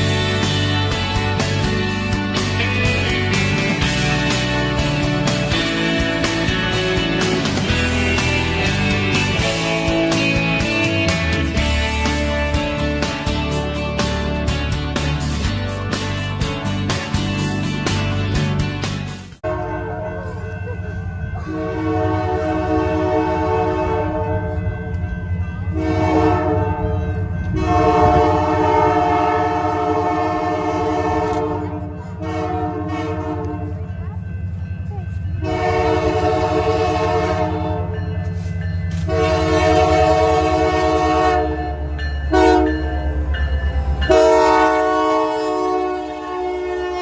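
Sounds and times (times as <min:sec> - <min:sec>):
locomotive rumble: 0:00.0 - 0:47.0
locomotive air horn blasts: 0:19.4 - 0:20.5, 0:21.4 - 0:25.0, 0:25.7 - 0:33.9, 0:35.4 - 0:47.0.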